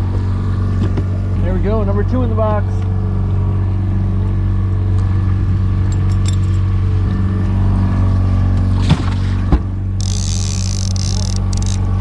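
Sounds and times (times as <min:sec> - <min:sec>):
outboard motor running: 0:00.0 - 0:12.0
light clinks: 0:05.8 - 0:06.7.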